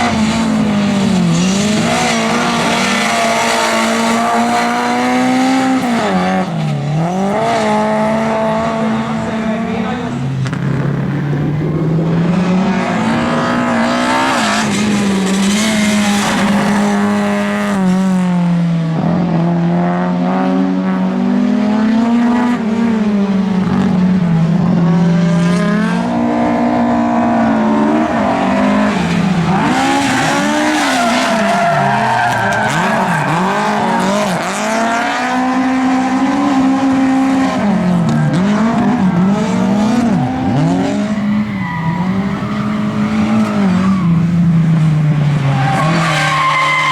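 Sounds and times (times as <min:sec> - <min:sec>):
race car engines revving: 0:00.0 - 0:46.9
tyre squeal: 0:37.9 - 0:44.5, 0:45.4 - 0:46.9.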